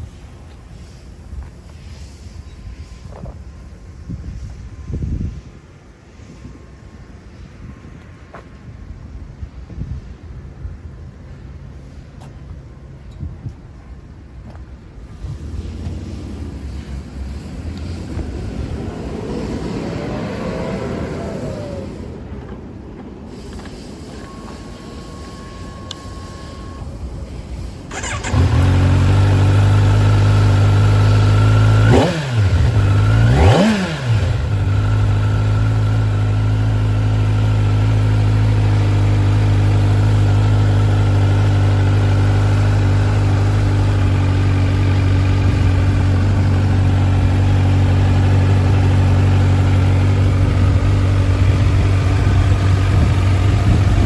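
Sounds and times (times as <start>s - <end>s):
motorcycle engine starting and revving: 14.9s - 22.6s, 23.3s - 54.0s
motorcycle engine idling: 27.4s - 54.0s.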